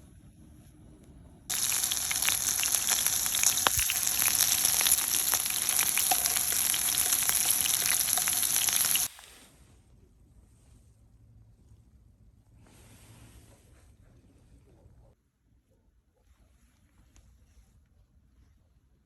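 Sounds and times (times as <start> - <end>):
food sizzling in a hot pan: 1.5 - 9.4.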